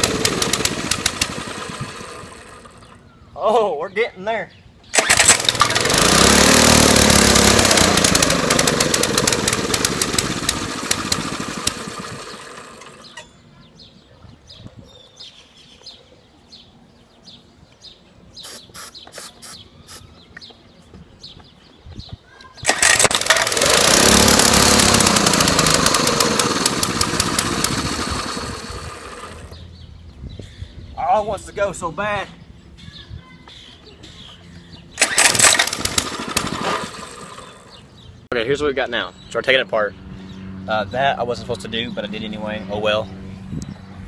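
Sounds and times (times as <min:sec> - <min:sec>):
mini-bike engine running: 0:00.0 - 0:03.0, 0:05.0 - 0:13.3, 0:22.6 - 0:29.8, 0:34.8 - 0:38.1.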